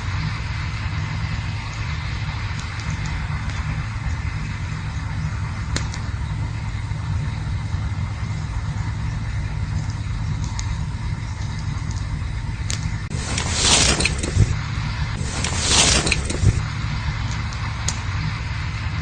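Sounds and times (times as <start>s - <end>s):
campfire crackling: 0.1s - 19.0s
rushing noise: 13.1s - 17.8s.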